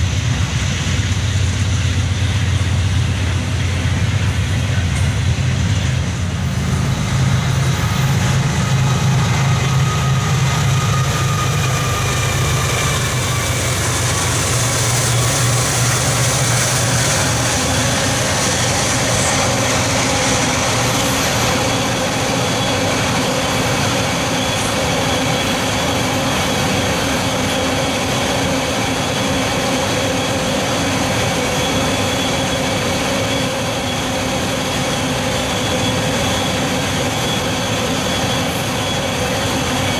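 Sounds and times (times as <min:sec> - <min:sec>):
locomotive engine hum: 0:00.0 - 0:39.9
train rolling on rails: 0:00.0 - 0:39.9.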